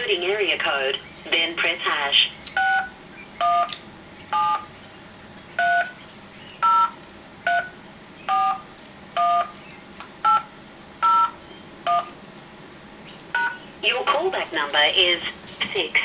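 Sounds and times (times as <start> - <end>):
touch-tone keypad beeps: 2.6 - 3.7, 4.4 - 4.7, 6.6 - 7.7, 8.3 - 8.6, 9.2 - 9.5, 10.3 - 12.1, 13.4 - 13.6.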